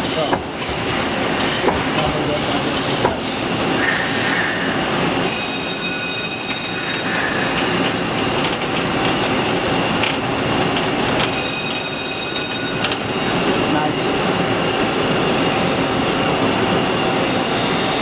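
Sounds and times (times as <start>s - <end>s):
lathe running: 0.0s - 18.0s
high-pitched multi-tone whine: 3.8s - 7.9s.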